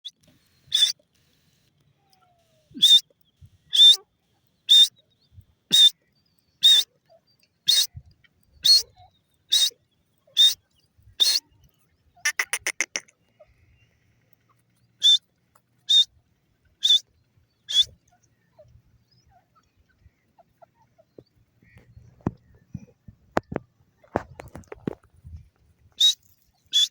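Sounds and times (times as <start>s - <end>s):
francolin calling: 0.7s - 1.0s, 2.7s - 3.1s, 3.7s - 4.0s, 4.6s - 5.1s, 5.7s - 6.0s, 6.6s - 6.9s, 7.7s - 8.0s, 8.6s - 11.6s, 12.2s - 13.9s, 15.0s - 15.2s, 15.8s - 16.1s, 16.8s - 18.4s, 26.0s - 26.9s.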